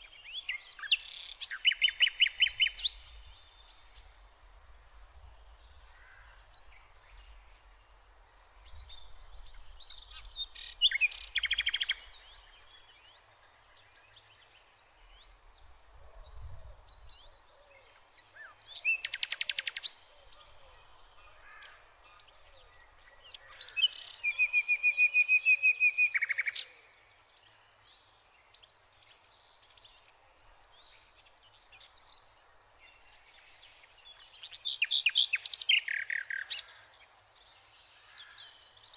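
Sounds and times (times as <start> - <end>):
birds calling and singing: 0.0 - 7.8, 8.7 - 38.9.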